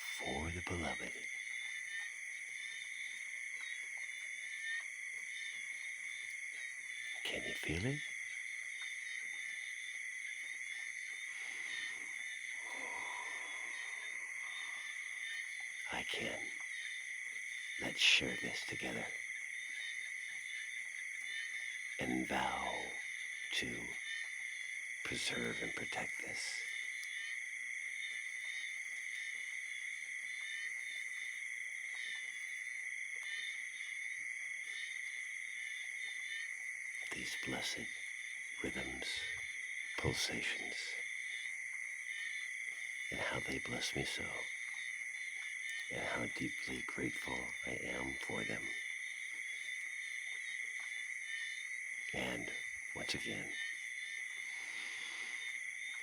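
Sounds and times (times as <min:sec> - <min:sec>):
frogs and insects calling: 0:00.0 - 0:56.0
gentle rain: 0:00.0 - 0:56.0
lower animal call: 0:11.4 - 0:15.6.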